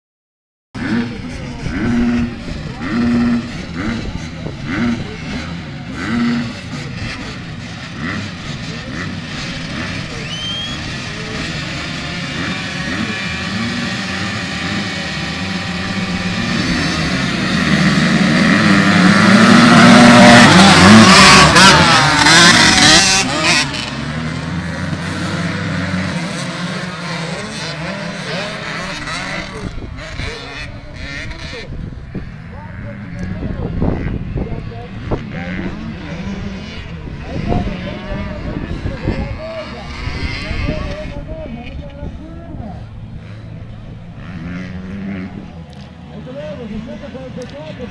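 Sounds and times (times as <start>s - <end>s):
dirt bike engines revving: 0.8s - 47.9s
dirt bike passing close: 0.8s - 47.9s.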